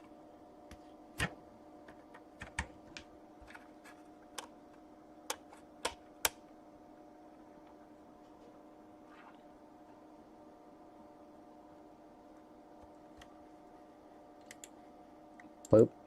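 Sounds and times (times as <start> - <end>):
faint electrical hum: 0.0 - 16.0
keyboard and mouse clicks: 2.4 - 3.7, 14.4 - 14.8.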